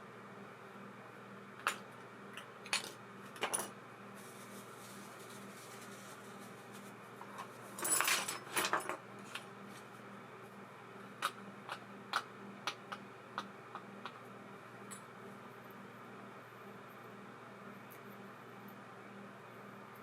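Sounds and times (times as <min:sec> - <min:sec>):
small metal parts clattering: 0:07.8 - 0:09.0.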